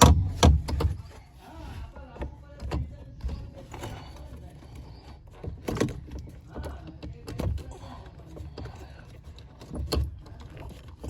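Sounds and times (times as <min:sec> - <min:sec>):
heavy thuds: 0:00.0 - 0:01.2
knocks and clicks of handling: 0:00.0 - 0:01.2, 0:02.1 - 0:11.0.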